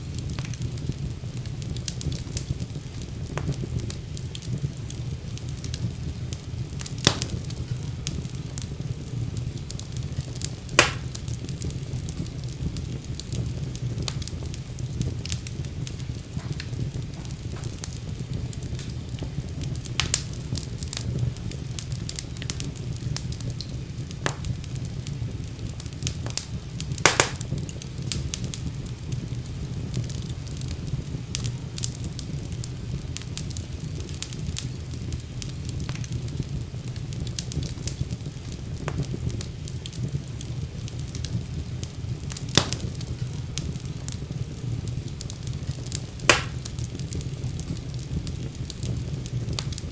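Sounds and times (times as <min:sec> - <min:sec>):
loud pops from fire: 0:00.0 - 0:49.9
wood fire crackling: 0:00.0 - 0:49.9.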